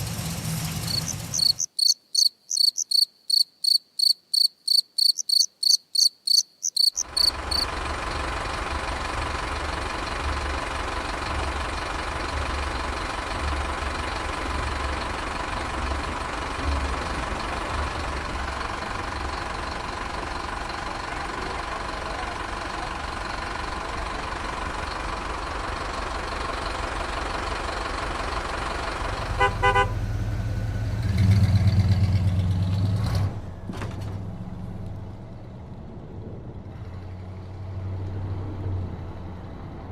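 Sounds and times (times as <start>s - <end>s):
heavy vehicle engine throbbing: 0.0s - 1.7s, 7.0s - 39.9s
rapid high chirping: 0.9s - 7.6s
loud low horn blast: 29.2s - 30.3s.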